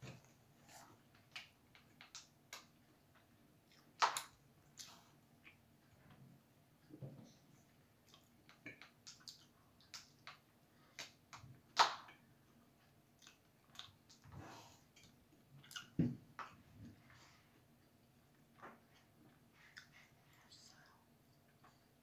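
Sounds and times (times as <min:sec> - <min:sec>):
person chewing pizza: 0:12.1 - 0:14.3.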